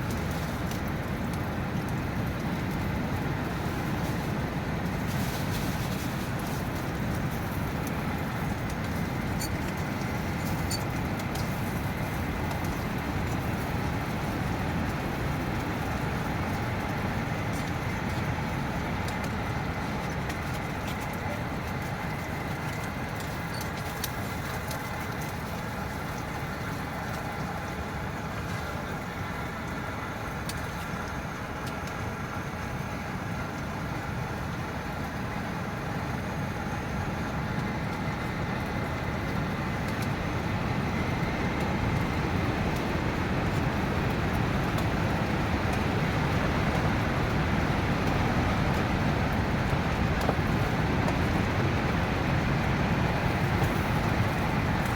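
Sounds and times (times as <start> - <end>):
rain pattering on shelter: 0.0 - 54.9
heavy wind rumbling: 36.4 - 54.9.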